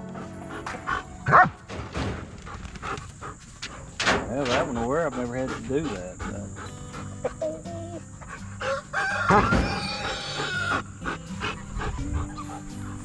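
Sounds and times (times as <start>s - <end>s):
rooster crowing: 8.6s - 10.8s.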